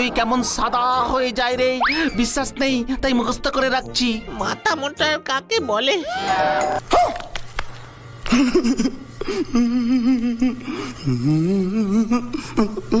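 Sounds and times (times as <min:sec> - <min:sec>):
person humming a wavering whimper: 0:09.4 - 0:13.0.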